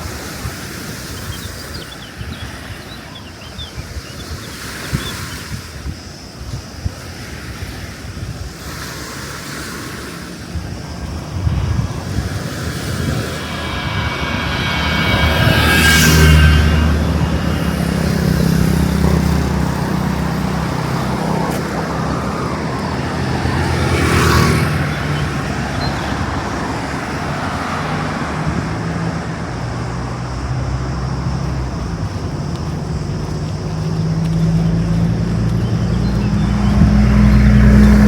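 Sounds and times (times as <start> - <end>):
vehicles passing: 9.2 - 38.0
low engine hum: 10.0 - 38.0.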